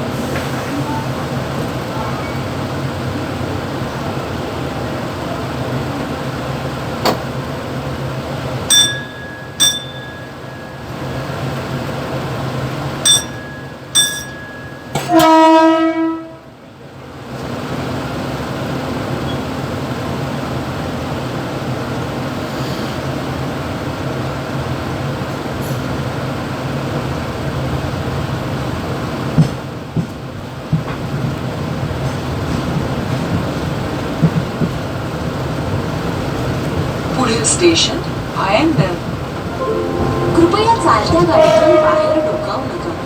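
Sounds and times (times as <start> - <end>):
train horn blast: 15.0 - 16.5, 39.4 - 43.0
train running rumble: 17.0 - 43.0.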